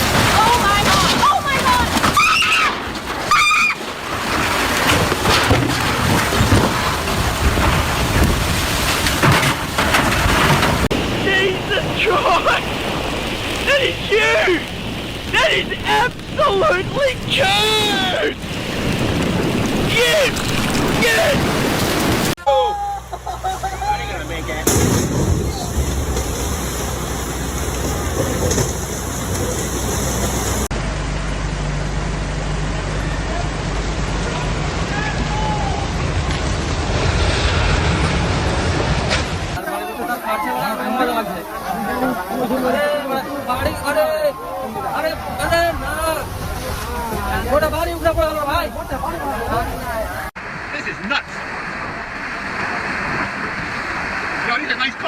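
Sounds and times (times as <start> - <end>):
rough water rushing: 0.0 - 30.7, 33.2 - 55.0
deep low rumble: 23.0 - 39.6.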